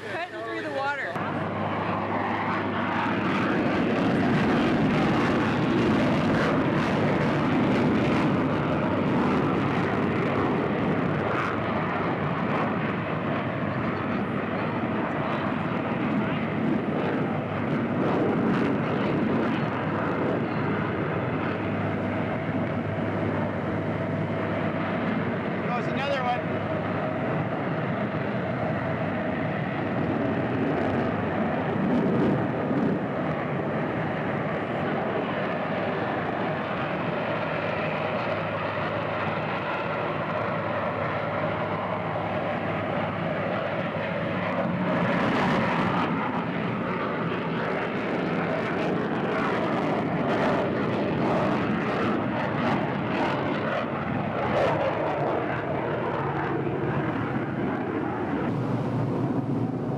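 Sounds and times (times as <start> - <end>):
jet engines rushing: 0.0 - 59.9.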